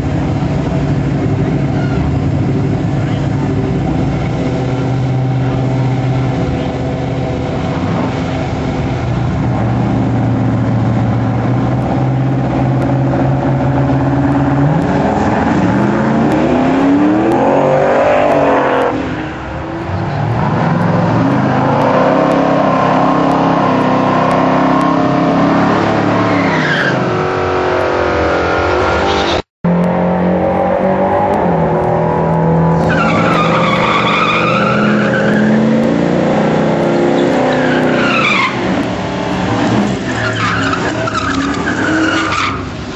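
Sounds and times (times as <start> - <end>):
pickup truck engine revving: 0.0 - 29.0, 29.8 - 42.9.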